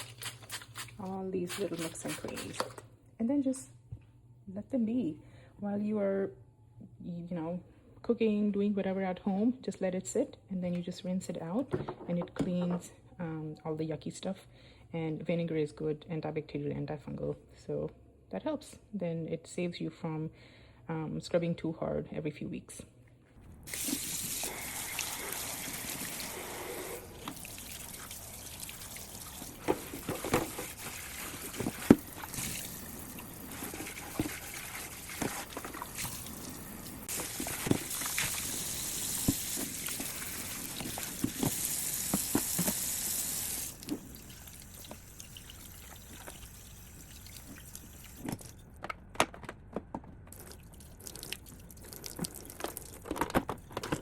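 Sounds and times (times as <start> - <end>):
tap water running: 23.7 - 48.4
plastic parts knocking and clicking: 48.2 - 50.4, 52.2 - 54.0.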